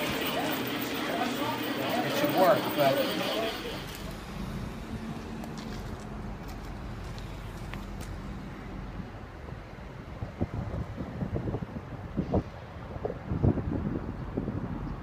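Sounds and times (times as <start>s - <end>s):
passenger train rumble: 0.0s - 15.0s
wind buffeting microphone: 4.2s - 15.0s.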